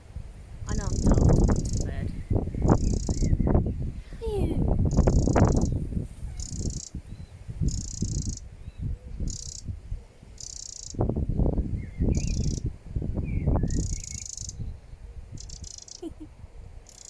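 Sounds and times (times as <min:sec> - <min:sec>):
small bird buzzy trill: 0:00.7 - 0:03.5, 0:04.8 - 0:09.7, 0:10.4 - 0:11.0, 0:12.1 - 0:12.7, 0:13.3 - 0:14.7, 0:15.4 - 0:16.3
bird chirps: 0:11.8 - 0:12.6, 0:13.3 - 0:14.7.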